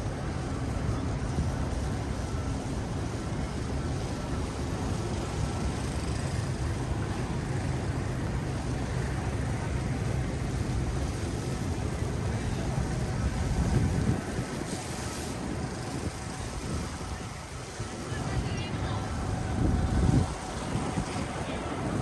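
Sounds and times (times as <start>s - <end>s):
city street traffic rumble: 0.0s - 22.0s.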